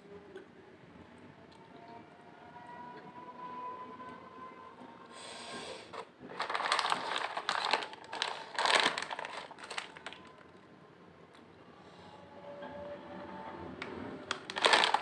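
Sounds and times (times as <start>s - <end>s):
chewing potato chips: 6.3s - 10.3s, 14.3s - 15.0s.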